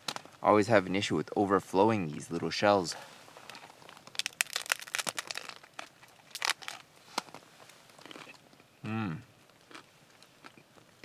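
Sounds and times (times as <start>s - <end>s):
crunching taco shell: 3.4s - 8.4s, 9.5s - 10.6s.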